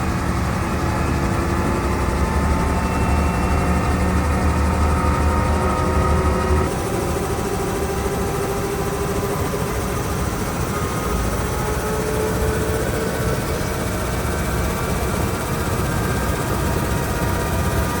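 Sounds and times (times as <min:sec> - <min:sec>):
helicopter engines and rotor: 0:00.0 - 0:18.0.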